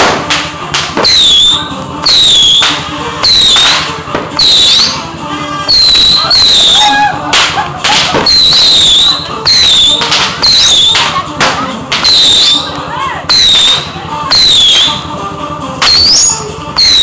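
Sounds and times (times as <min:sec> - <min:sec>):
firework cracks: 0:00.0 - 0:05.0, 0:05.7 - 0:15.1
whistling fireworks: 0:01.0 - 0:05.0, 0:05.7 - 0:11.1, 0:12.0 - 0:15.1, 0:15.8 - 0:17.0.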